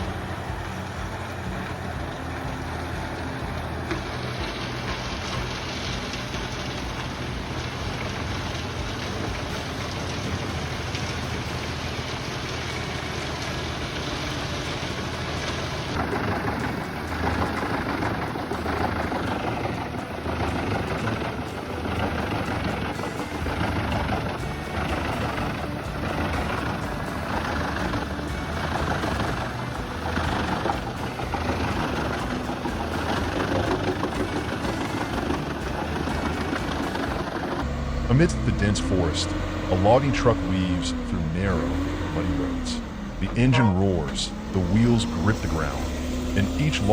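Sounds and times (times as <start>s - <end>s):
large machine engine running: 0.0s - 46.9s
mechanical clatter: 15.4s - 37.7s.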